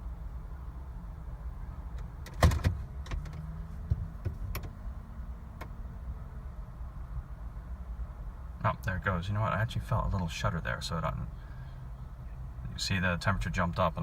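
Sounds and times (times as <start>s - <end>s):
clicks and clunks in car: 1.9s - 4.8s, 5.6s - 5.8s.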